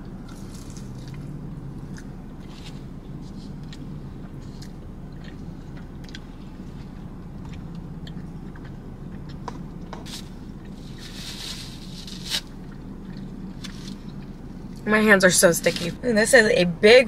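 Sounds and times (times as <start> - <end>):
chewing and mouth sounds: 0.0 - 14.9
low hum in car cabin: 0.0 - 17.0
paper napkin rustle: 10.1 - 12.5.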